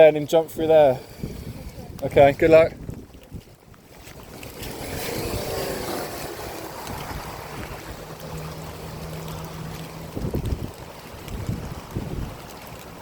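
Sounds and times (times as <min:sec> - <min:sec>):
rush of displaced water: 0:00.0 - 0:13.0
engine low hum: 0:05.4 - 0:13.0.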